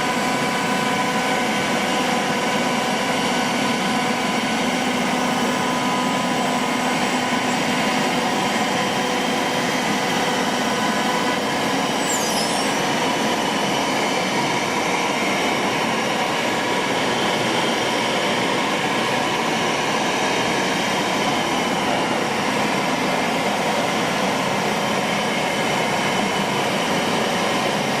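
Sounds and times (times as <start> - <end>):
high falling squeal: 11.2 - 14.4.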